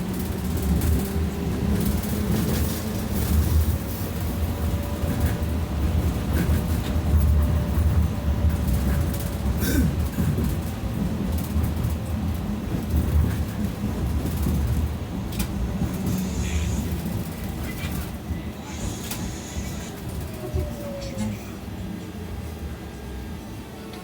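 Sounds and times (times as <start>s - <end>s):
tram wheels rumbling on rails: 0.0s - 24.0s.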